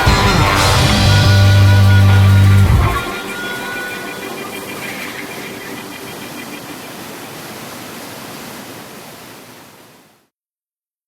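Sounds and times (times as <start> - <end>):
held music notes: 0.0 - 6.8
steady rush of noise: 0.0 - 9.5.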